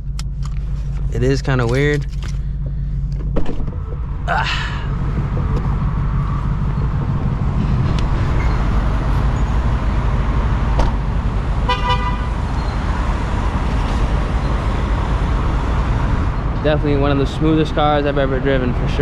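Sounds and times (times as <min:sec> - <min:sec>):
car engine and tyres cruising: 0:00.0 - 0:19.0
car horn toot: 0:11.6 - 0:12.5.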